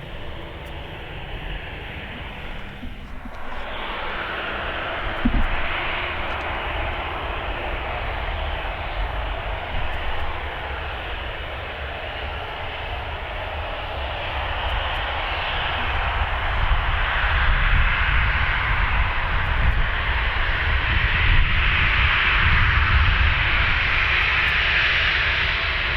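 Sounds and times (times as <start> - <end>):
aircraft engines running: 0.0 - 25.9
brief knock: 5.0 - 6.5.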